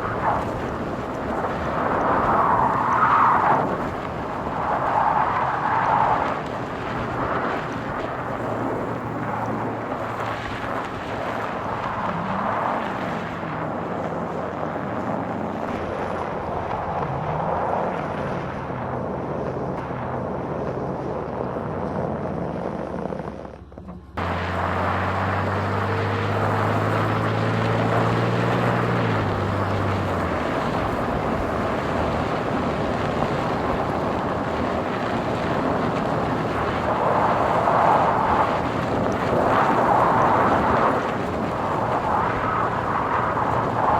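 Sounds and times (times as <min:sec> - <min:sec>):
road noise: 0:00.0 - 0:43.9
car engine driving: 0:22.6 - 0:43.9.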